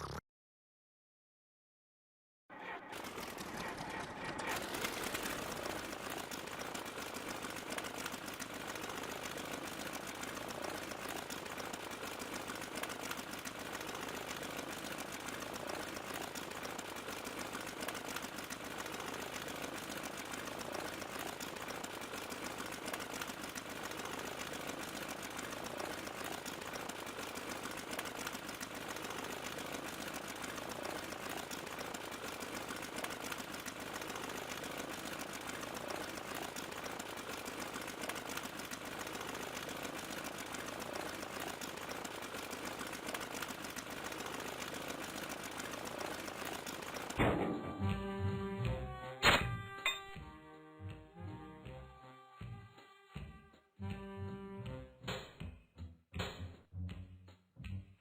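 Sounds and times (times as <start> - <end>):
small machine clattering: 2.5 - 50.3.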